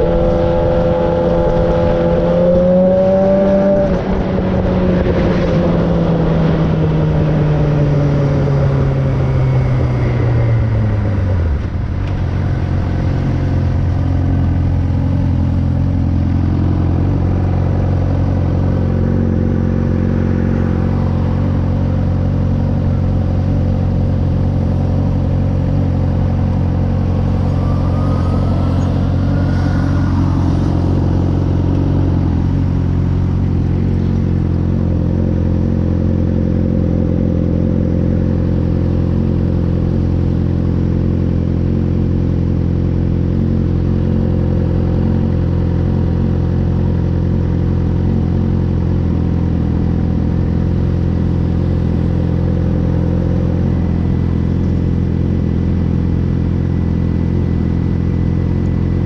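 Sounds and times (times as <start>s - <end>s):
motorcycle engine running: 0.0s - 59.0s
faint rising whine: 5.3s - 34.6s.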